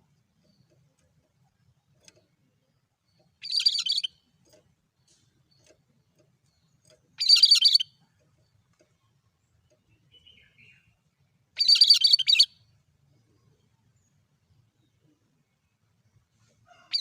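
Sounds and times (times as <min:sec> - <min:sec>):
bird harsh high-pitched call: 0:03.4 - 0:04.2, 0:07.2 - 0:07.9, 0:11.6 - 0:12.5.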